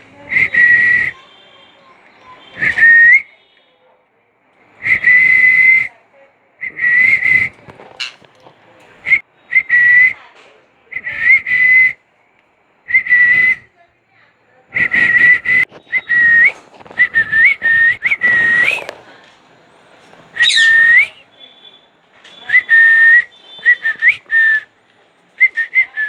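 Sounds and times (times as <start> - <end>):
short high whistles: 14.8 - 19.0, 20.3 - 24.7.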